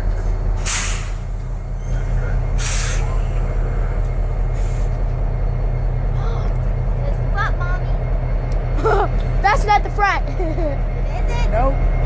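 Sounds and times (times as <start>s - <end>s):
train cars rumbling past: 0.0s - 12.0s
air brakes hissing: 0.1s - 5.2s.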